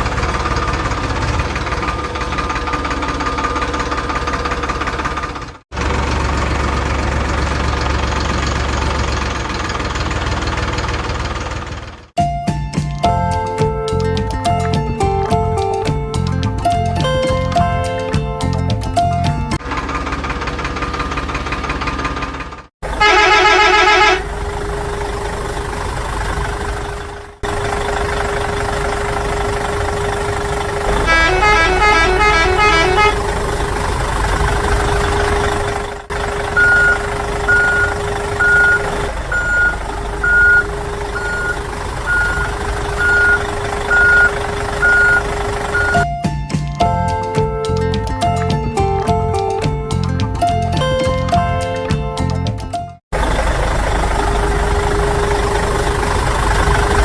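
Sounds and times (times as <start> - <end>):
truck engine running: 0.0 - 57.0
truck horn honks: 23.0 - 24.3, 31.0 - 33.3
reversing beeper: 36.5 - 47.6.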